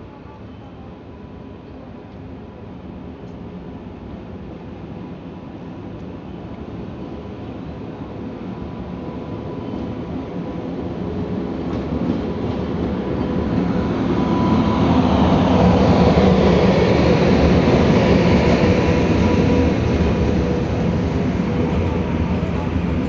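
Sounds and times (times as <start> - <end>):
train passing: 1.2 - 23.0.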